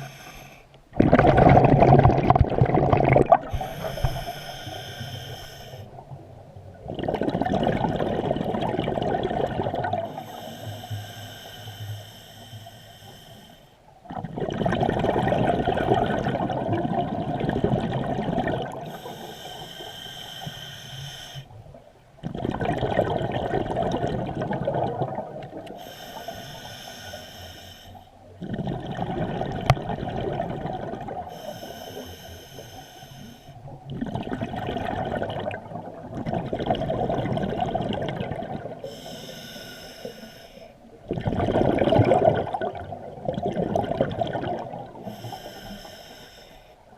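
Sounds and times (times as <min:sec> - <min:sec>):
hissing regulator inhale: 0:00.0 - 0:00.8, 0:03.4 - 0:06.0, 0:10.0 - 0:13.8, 0:18.8 - 0:21.6, 0:25.7 - 0:28.2, 0:31.3 - 0:33.7, 0:38.8 - 0:40.8, 0:45.0 - 0:46.8
exhaled bubbles rumbling: 0:00.9 - 0:04.9, 0:05.8 - 0:10.3, 0:14.0 - 0:19.1, 0:21.6 - 0:25.8, 0:28.3 - 0:31.3, 0:33.7 - 0:39.0, 0:40.9 - 0:45.2.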